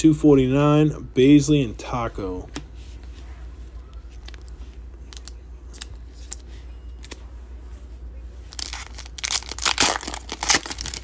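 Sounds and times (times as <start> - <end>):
wrapper torn open crinkling: 8.5 - 11.0.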